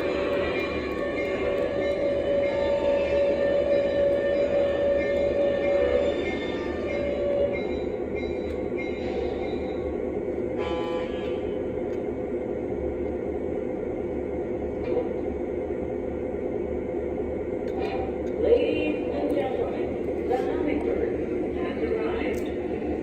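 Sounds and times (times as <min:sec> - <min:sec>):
model train rolling on track: 0:00.0 - 0:12.2
model train horn toot: 0:10.6 - 0:11.5.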